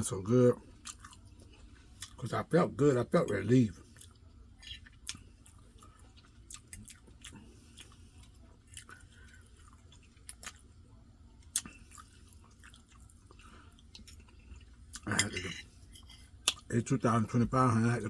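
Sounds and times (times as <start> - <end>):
person chewing food: 0.6 - 2.3, 3.2 - 16.7.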